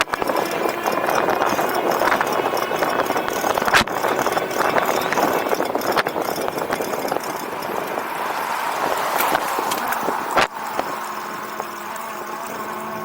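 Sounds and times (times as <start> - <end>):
bike rattling clatter: 0.0 - 13.0.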